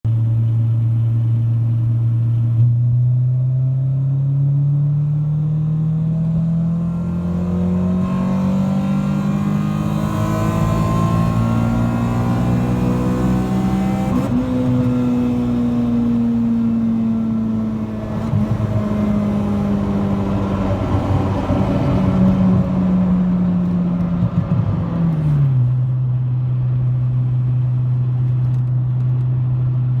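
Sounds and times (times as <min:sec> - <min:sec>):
car engine revving: 0:05.3 - 0:25.8.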